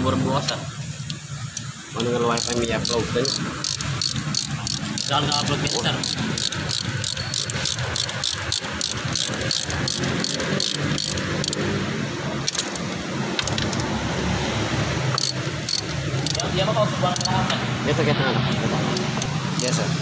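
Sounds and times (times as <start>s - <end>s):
sharp fast ticking: 1.6s - 11.7s, 15.1s - 17.5s, 19.0s - 19.8s.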